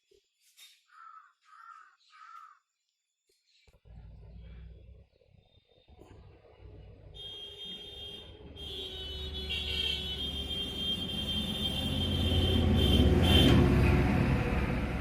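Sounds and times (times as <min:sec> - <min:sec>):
vehicle engine rumbling: 0:03.7 - 0:15.0.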